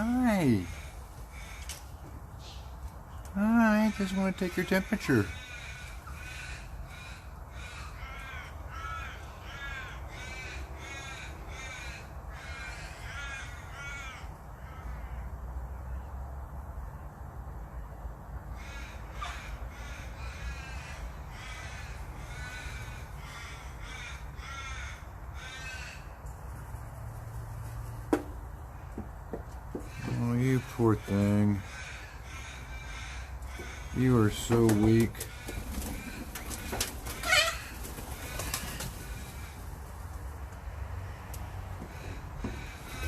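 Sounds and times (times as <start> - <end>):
bird calling: 29.8 - 39.8.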